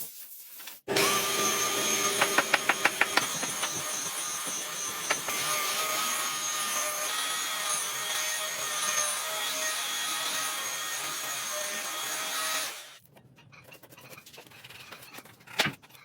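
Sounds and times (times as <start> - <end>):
electric power tool whining: 0.9 - 13.0.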